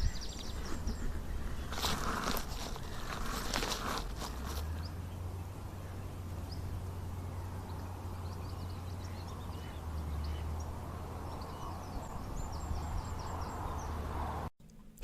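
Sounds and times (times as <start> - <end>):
wind rumble on microphone: 0.0 - 14.5.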